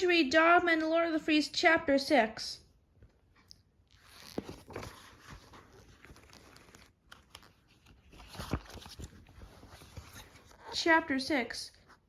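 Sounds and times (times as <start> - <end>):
book pages turning: 3.9 - 11.2.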